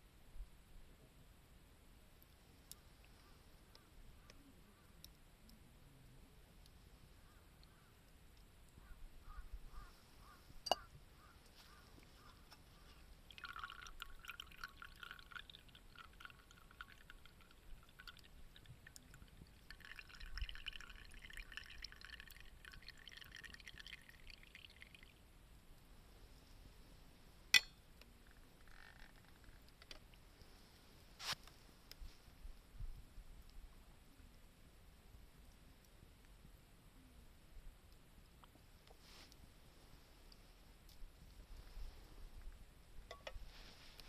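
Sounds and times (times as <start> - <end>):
liquid pouring into a cup: 13.2 - 25.2
sharp clink: 27.6 - 27.8.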